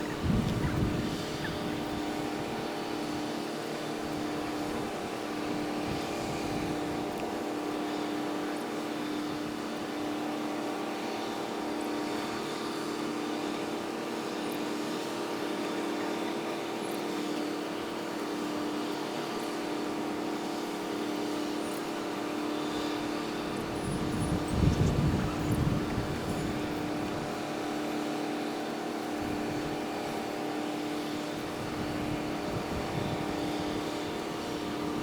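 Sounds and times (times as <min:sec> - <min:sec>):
mechanical drone with hum: 0:00.0 - 0:07.7, 0:20.6 - 0:35.0.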